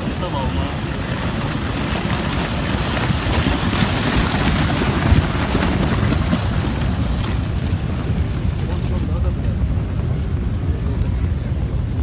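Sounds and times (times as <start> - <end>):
mud and rocks rushing: 0.0 - 9.1
wind buffeting microphone: 0.0 - 12.0.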